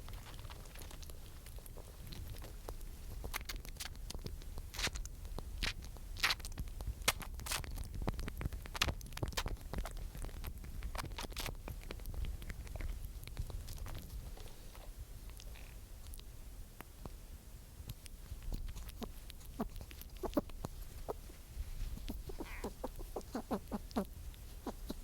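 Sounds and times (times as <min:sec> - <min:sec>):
squirrel scratching and crackling: 0:00.0 - 0:17.2, 0:17.8 - 0:25.0
low steady rumble: 0:00.0 - 0:25.0.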